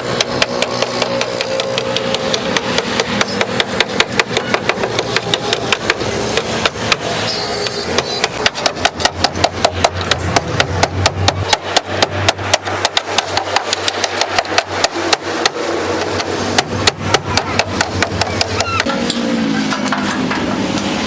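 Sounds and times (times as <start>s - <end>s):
hammering on sheet metal: 0.0s - 21.0s.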